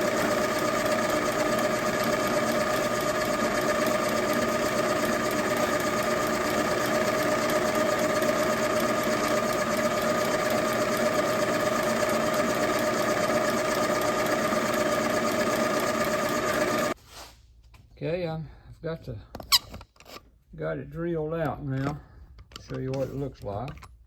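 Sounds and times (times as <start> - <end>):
milling machine whining: 0.0 - 17.0.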